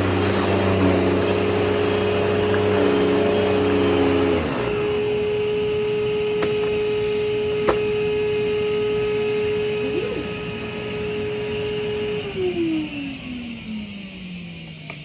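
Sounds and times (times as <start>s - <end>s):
canister vacuum running: 0.0s - 15.0s.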